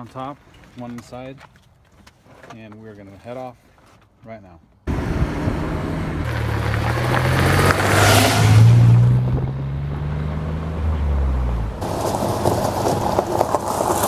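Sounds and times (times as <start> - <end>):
road and wind noise: 4.8 - 14.0
car engine accelerating: 4.9 - 14.0.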